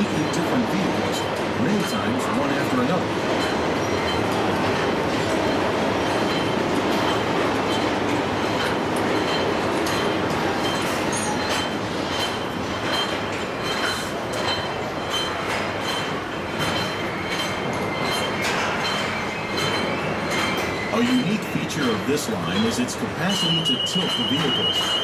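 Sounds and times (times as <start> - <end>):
sharp metallic clicks and clanks: 0.0 - 25.0.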